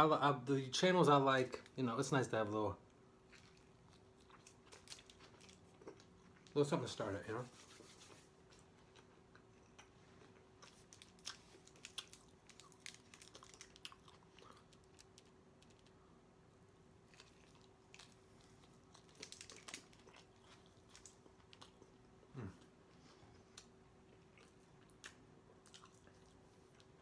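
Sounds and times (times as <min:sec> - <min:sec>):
faint steady hum: 0:00.0 - 0:27.0
person chewing food: 0:03.2 - 0:06.6, 0:08.4 - 0:16.0, 0:17.0 - 0:27.0.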